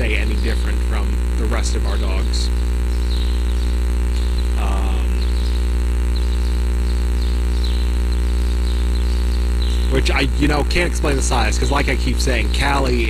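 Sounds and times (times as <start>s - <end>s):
faint voice-like sound: 0.0s - 2.5s, 4.6s - 5.2s, 9.9s - 13.0s
electrical mains hum: 0.0s - 13.0s.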